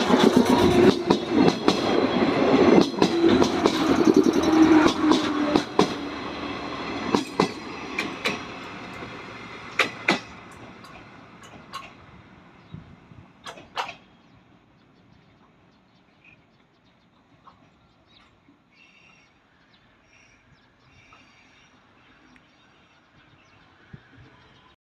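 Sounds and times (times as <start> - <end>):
train rumbling past: 0.0 - 24.8
wheels clicking over rail joints: 7.0 - 12.7, 13.4 - 14.1.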